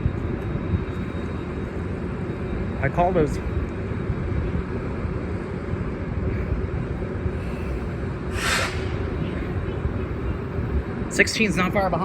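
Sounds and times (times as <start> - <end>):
diesel train rumbling past: 0.0 - 12.0
short air hiss: 8.3 - 9.2.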